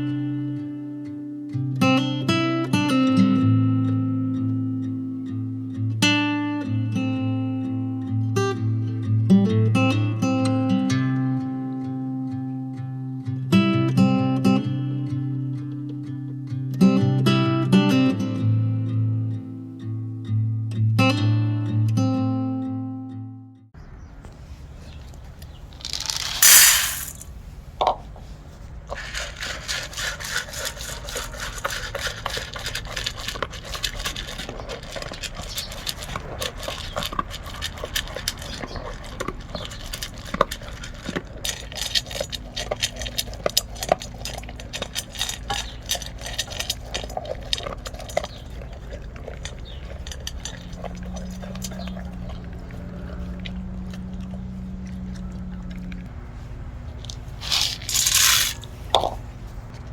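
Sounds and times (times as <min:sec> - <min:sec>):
dog eating kibble from bowl: 0:28.7 - 0:56.2, 0:56.8 - 0:59.9.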